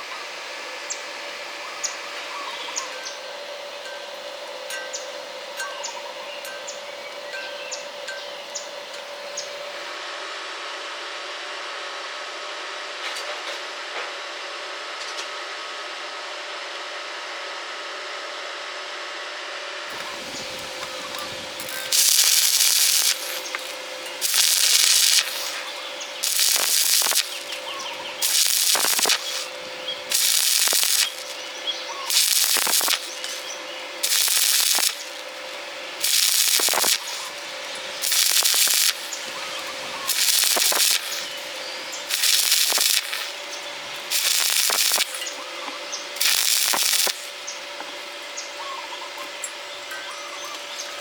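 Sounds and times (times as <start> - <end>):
steady hum: 0.0 - 51.0
welding arc crackling: 19.9 - 45.4, 46.0 - 48.2.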